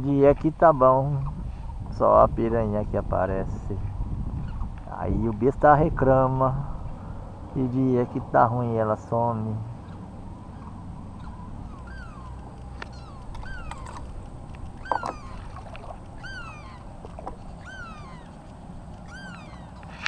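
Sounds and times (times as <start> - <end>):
bird mewing call: 9.7 - 20.0.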